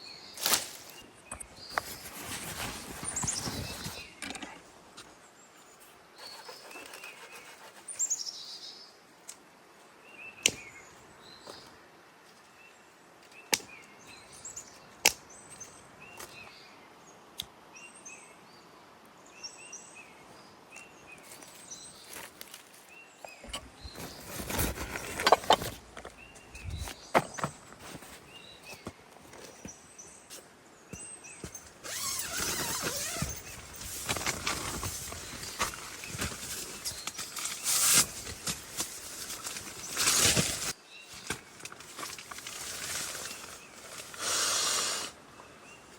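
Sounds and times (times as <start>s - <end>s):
rustling and crunching undergrowth: 0.0s - 7.7s, 20.7s - 45.9s.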